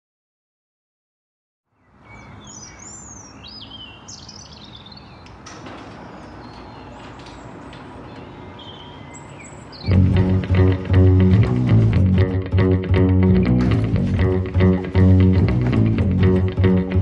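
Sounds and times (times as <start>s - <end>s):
birds chirping and whistling: 2.1s - 5.2s, 6.0s - 10.0s.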